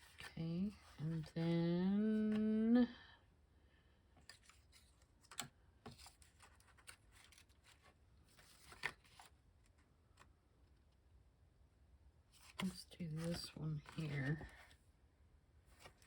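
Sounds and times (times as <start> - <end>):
paper rustling and tapping: 4.2 - 9.3.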